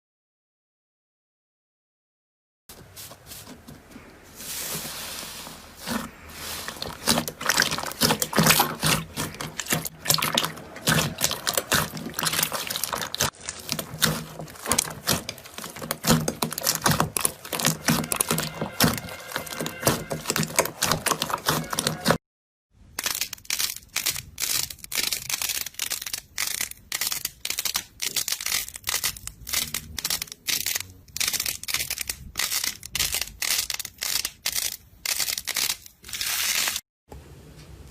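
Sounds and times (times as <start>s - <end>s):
slime crackling and popping: 6.7s - 22.1s, 22.9s - 36.8s.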